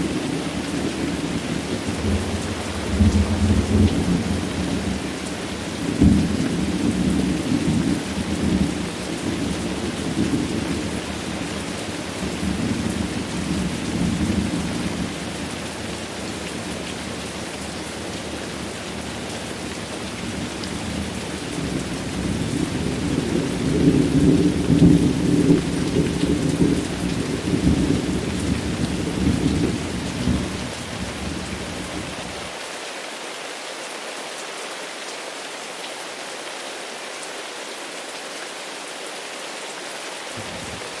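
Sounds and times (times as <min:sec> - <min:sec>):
heavy rain: 0:00.0 - 0:41.0
rolling thunder: 0:01.8 - 0:05.0, 0:20.3 - 0:32.5.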